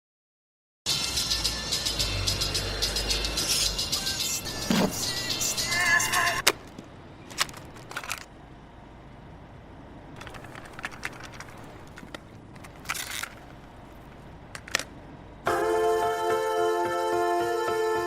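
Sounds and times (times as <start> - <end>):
music with sustained notes: 0.9 - 6.4, 15.5 - 18.0
low background hum: 4.4 - 16.2.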